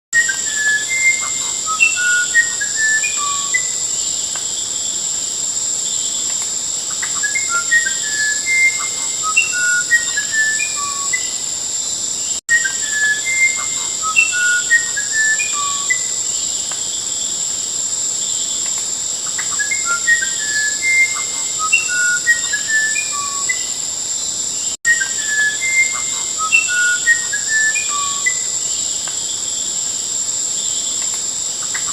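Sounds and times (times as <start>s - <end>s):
songbird whistling: 0.2s - 4.4s, 6.2s - 11.5s, 12.5s - 16.8s, 19.3s - 23.8s, 24.9s - 29.0s
high-pitched insect trill: 0.2s - 31.9s.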